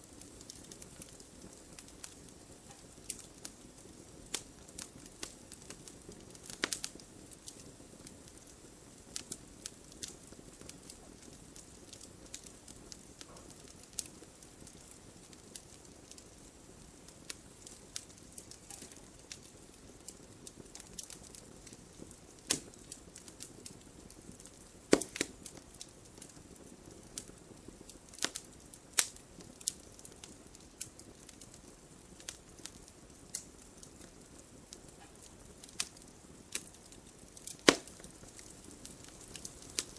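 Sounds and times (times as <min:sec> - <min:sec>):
fire pops and snaps: 0:00.0 - 0:39.9
hiss of flames: 0:00.0 - 0:39.9.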